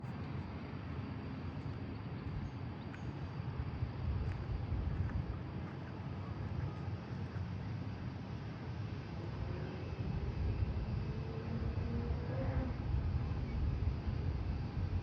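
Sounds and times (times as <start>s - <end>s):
jet engines rumbling: 0.0s - 15.0s
wind on microphone: 9.3s - 15.0s.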